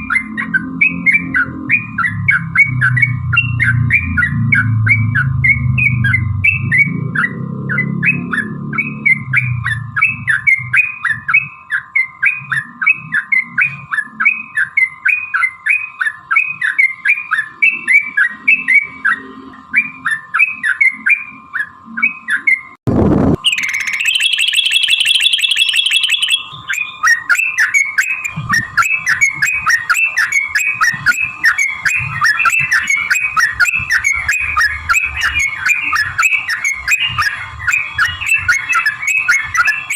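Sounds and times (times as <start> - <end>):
bulbul song: 0.0 - 22.8, 23.4 - 39.9
fast high trill: 22.9 - 39.9.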